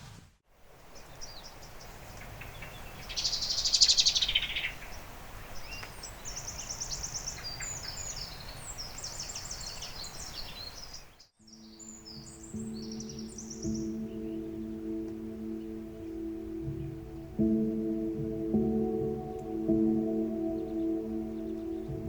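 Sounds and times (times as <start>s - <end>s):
outdoor background hiss: 0.0s - 22.0s
songbirds trilling: 0.9s - 22.0s.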